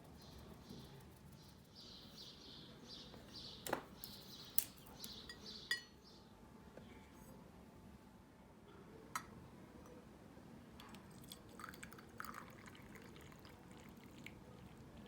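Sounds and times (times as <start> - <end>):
faint bird chirping: 0.0 - 7.0
tableware clinking: 5.3 - 6.0.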